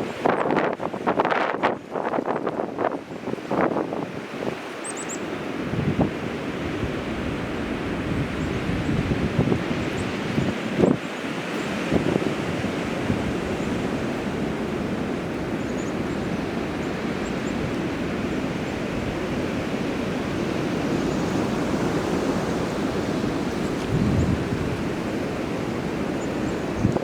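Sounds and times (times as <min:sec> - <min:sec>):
wind buffeting microphone: 0:05.6 - 0:27.0
strong wind rushing: 0:05.7 - 0:11.0, 0:18.9 - 0:27.0.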